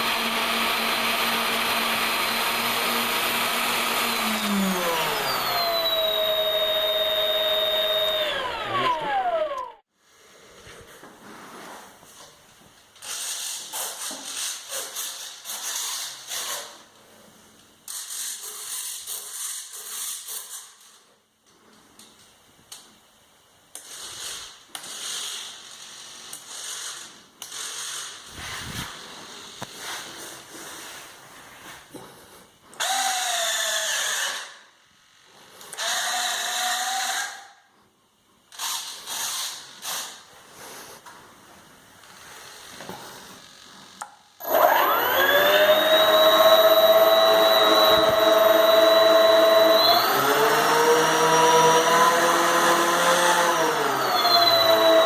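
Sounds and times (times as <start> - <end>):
electric motors whirring: 0.0 - 9.8, 44.4 - 55.0
rising motor whine: 0.4 - 9.8, 44.4 - 55.0.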